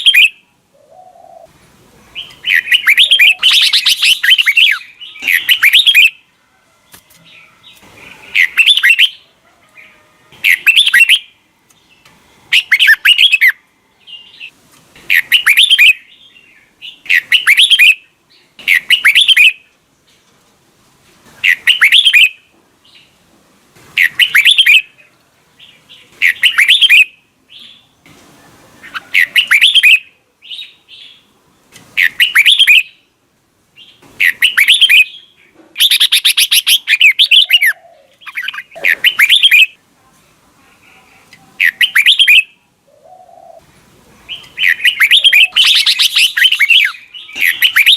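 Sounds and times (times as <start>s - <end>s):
bulbul song: 0.0s - 6.3s, 7.0s - 9.2s, 10.3s - 11.4s, 12.5s - 19.7s, 21.4s - 23.1s, 24.0s - 25.0s, 25.6s - 31.3s, 32.0s - 33.1s, 33.8s - 39.8s, 41.3s - 47.9s.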